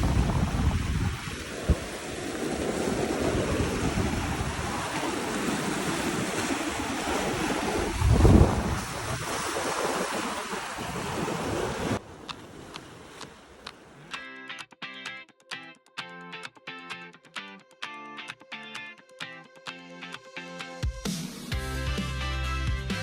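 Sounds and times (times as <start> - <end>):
wind buffeting microphone: 0.0 - 14.0
ocean surf washing in: 0.0 - 14.2.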